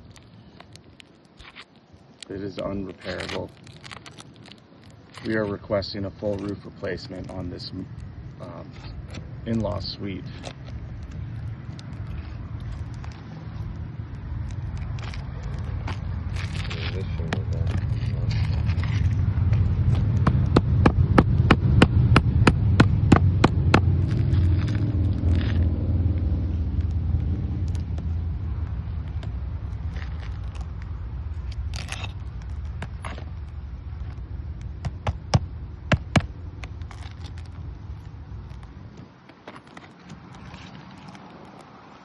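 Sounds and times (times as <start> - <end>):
shingles cracking and scraping: 0.0 - 6.6, 14.4 - 21.0, 29.0 - 35.3, 35.9 - 41.7
low rumble: 10.2 - 38.8.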